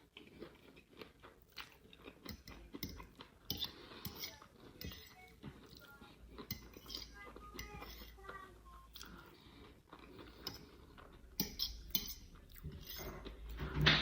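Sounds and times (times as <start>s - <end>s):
person chewing food: 0.0s - 13.6s.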